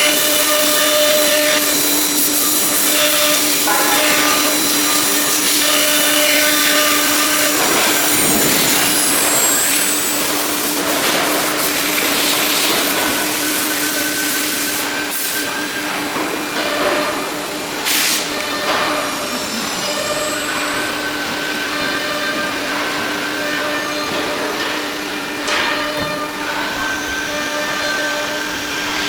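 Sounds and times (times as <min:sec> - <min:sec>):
router spindle whine: 0:00.0 - 0:11.0
hissing machine noise: 0:00.0 - 0:29.0.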